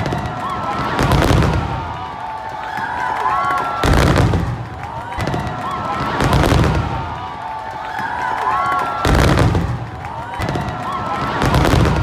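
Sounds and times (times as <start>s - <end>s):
fireworks booming: 0.0s - 2.0s, 3.8s - 7.2s, 9.0s - 12.0s
fireworks crackling and rumbling: 0.0s - 12.0s.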